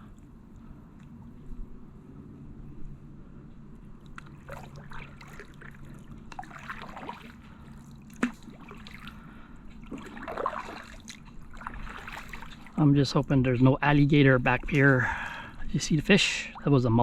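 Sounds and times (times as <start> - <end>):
water dripping off paddle: 4.0 - 12.8
paddle splashing in water: 4.1 - 12.8.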